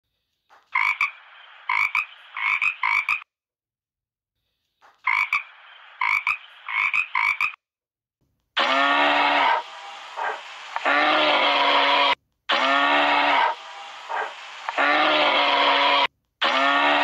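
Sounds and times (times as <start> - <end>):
frog croaking: 0.7 - 3.3, 5.0 - 7.6.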